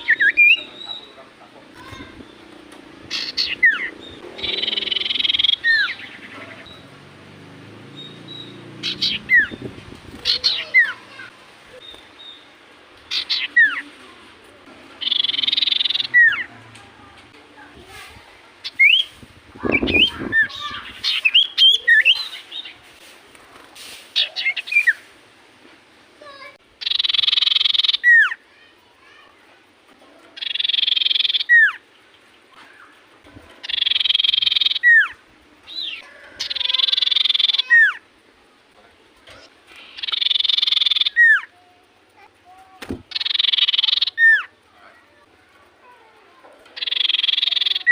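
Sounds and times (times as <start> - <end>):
bird buzzy trills: 0.0 - 12.5, 15.0 - 16.6, 18.6 - 22.8, 26.8 - 28.4, 30.4 - 33.0, 33.6 - 38.0, 39.7 - 41.5, 43.0 - 44.7, 46.8 - 47.9.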